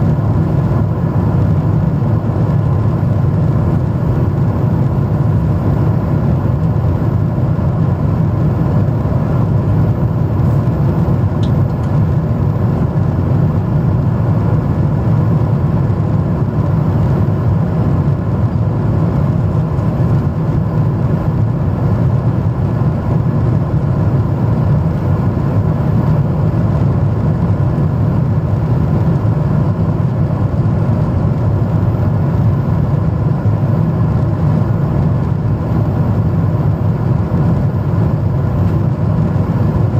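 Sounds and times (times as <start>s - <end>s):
faint steady hum: 0.0s - 39.9s
jet engine and airflow rumble: 0.0s - 39.9s.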